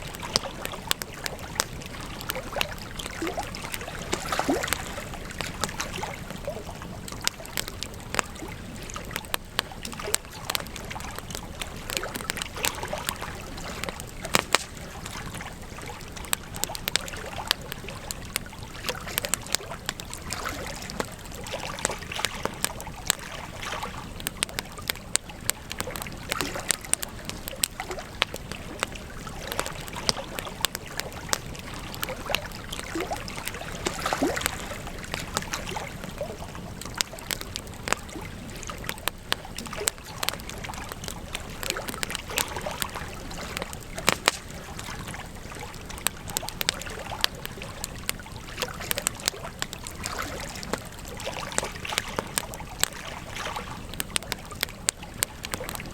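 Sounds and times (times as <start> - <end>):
burning wood popping and snapping: 0.0 - 55.9.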